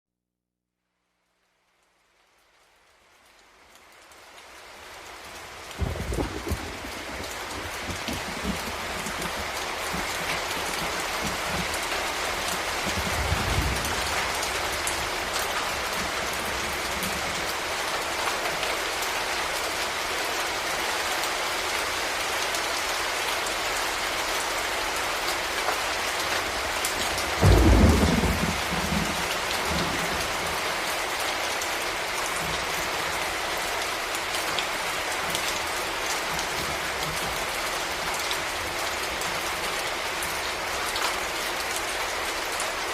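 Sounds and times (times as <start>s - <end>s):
heavy rain falling: 1.7s - 42.9s
thunder rumbling: 5.7s - 17.3s, 27.1s - 30.6s
thunder clap: 5.8s - 11.7s, 12.8s - 14.5s, 27.3s - 30.1s.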